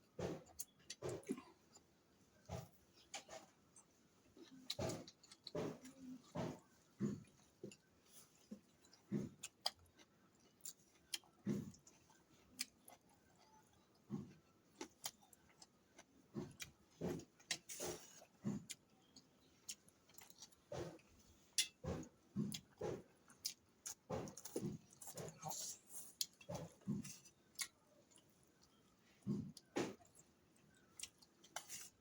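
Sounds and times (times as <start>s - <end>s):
person chewing: 0.1s - 32.0s.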